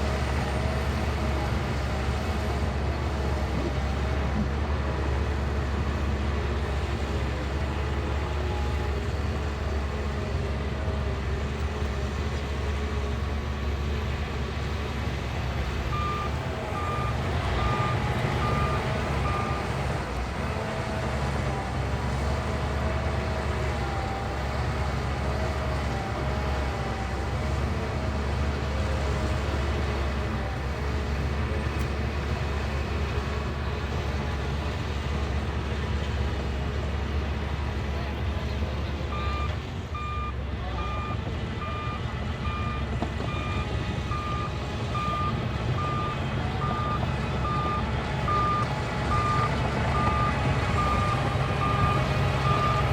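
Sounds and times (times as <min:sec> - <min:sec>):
diesel engine running: 0:00.0 - 0:52.9
reversing alarm beeping: 0:15.9 - 0:19.9, 0:39.1 - 0:52.9.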